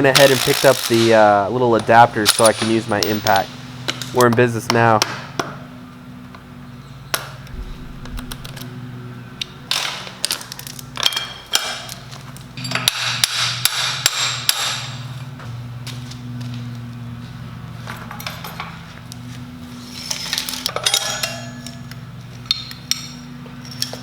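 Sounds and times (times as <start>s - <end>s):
steady low hum: 7.4s - 9.7s.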